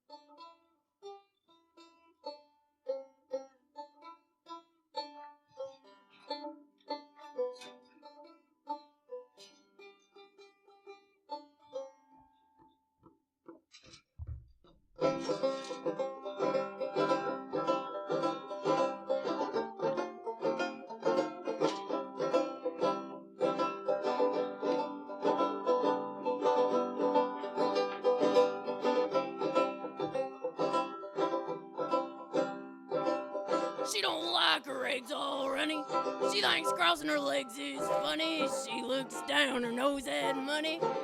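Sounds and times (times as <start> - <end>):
plucked string instrument: 0.0 - 14.4, 15.0 - 41.0
soft low thump: 14.2 - 14.6.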